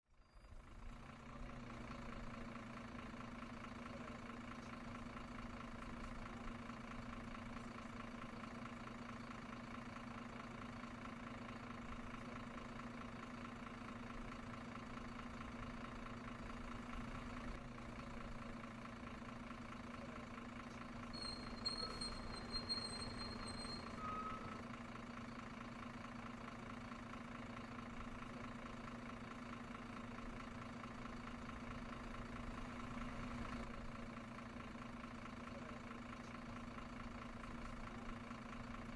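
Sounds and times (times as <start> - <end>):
model vehicle engine idling hum: 0.1 - 38.9
high steady tone: 21.1 - 24.6.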